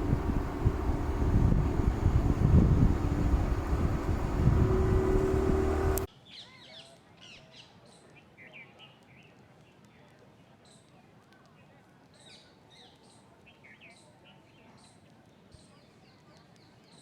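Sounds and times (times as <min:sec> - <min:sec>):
loud low rumbling with hum: 0:00.0 - 0:06.1.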